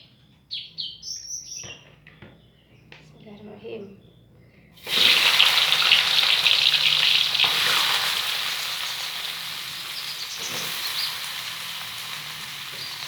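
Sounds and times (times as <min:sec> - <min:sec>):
food sizzling in hot oil: 0:04.8 - 0:13.0.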